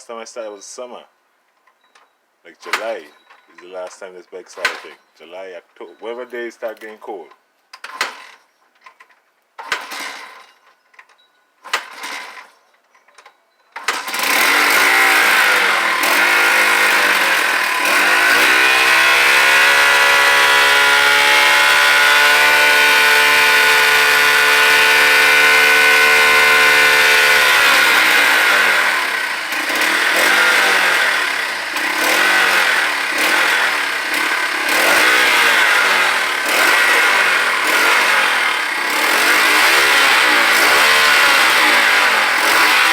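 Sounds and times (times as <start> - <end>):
dirt bike engine starting and revving: 2.6 - 3.1, 4.5 - 5.0, 7.8 - 8.4, 9.6 - 10.7, 11.6 - 12.6, 13.8 - 42.9.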